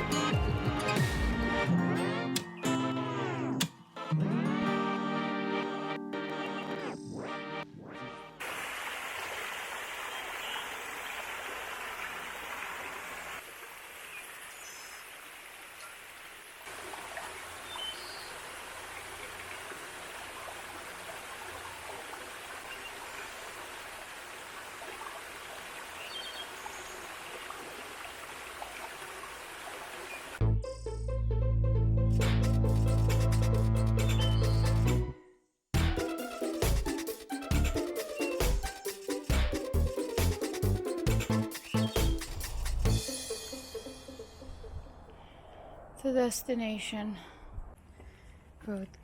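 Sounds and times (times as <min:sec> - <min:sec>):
stream water rushing: 0:08.4 - 0:30.4.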